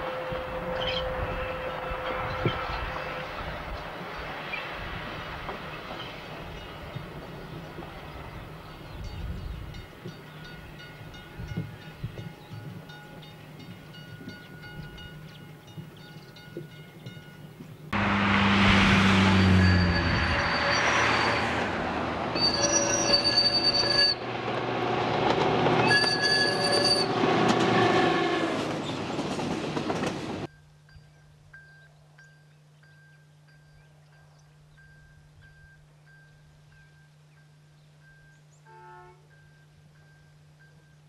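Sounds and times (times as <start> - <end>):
train running noise: 0.0 - 30.6
distant train rumble: 0.0 - 41.0
low engine drone: 17.9 - 20.4
long shrill tones: 19.1 - 24.2, 25.8 - 27.2.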